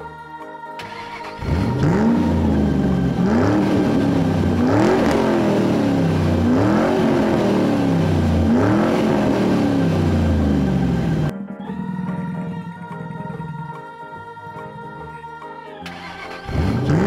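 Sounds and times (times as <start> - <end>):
car engine revving: 0.8 - 11.3, 15.9 - 17.0.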